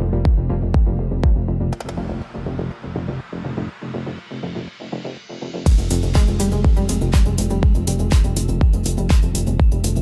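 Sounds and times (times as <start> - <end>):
pulsing synth in techno: 5.7 - 10.0.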